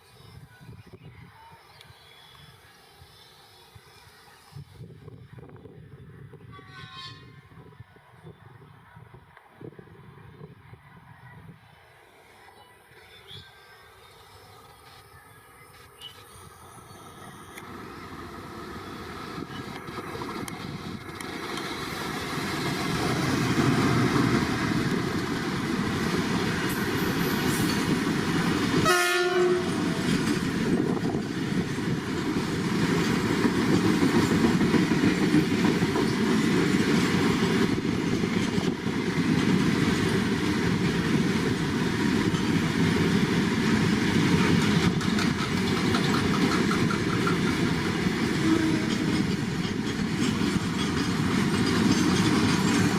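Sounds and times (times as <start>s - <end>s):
freight train wheels clattering: 29.5s - 52.9s.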